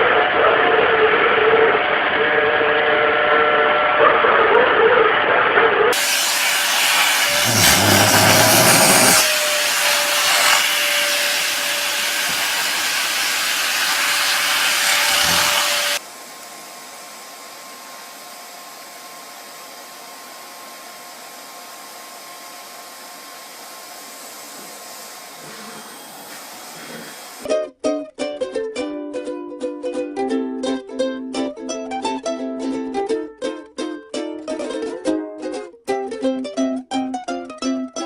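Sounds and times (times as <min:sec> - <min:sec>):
vacuum cleaner whining: 0:01.8 - 0:04.0, 0:05.9 - 0:27.4.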